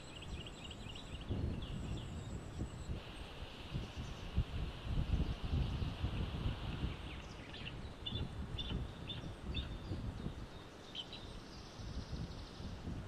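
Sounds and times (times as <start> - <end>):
bird chirping: 0.0 - 3.0, 6.8 - 12.7
wind on microphone: 0.0 - 13.0.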